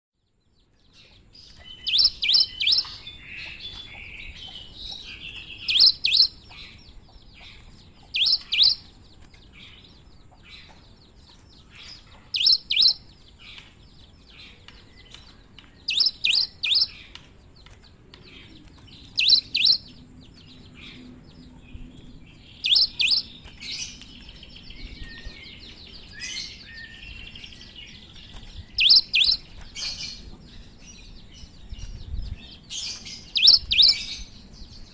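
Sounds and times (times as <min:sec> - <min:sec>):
soft bird chattering: 0:01.0 - 0:10.7, 0:11.6 - 0:13.6, 0:15.8 - 0:17.2, 0:18.5 - 0:19.9, 0:22.6 - 0:24.3, 0:28.7 - 0:30.2, 0:32.8 - 0:34.1.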